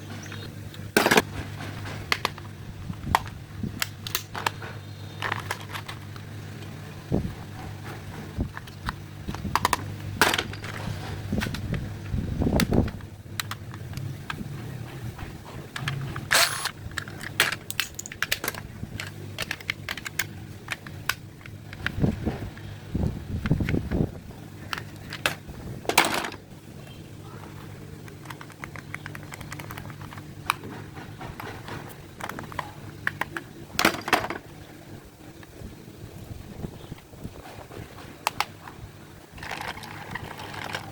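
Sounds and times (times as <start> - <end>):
steady low hum: 0.0 - 40.9
small hard objects clicking and rattling: 5.2 - 6.7, 15.7 - 22.6, 39.3 - 40.9
small motor humming: 15.7 - 16.7.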